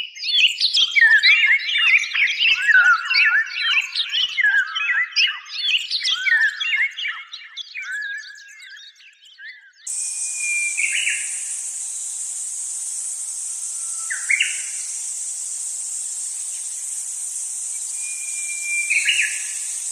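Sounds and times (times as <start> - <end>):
bird calls: 9.9 - 19.9
high-pitched insect hiss: 9.9 - 19.9.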